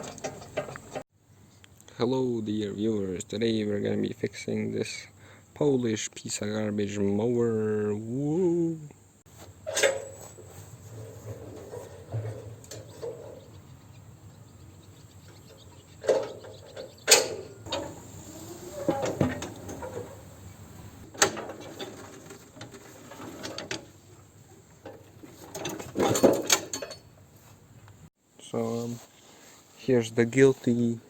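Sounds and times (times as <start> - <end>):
sharp knocks and clatter: 0.0 - 1.0, 9.6 - 13.6, 15.2 - 20.4, 21.0 - 24.0, 24.8 - 27.1
soft rustling: 9.3 - 13.5.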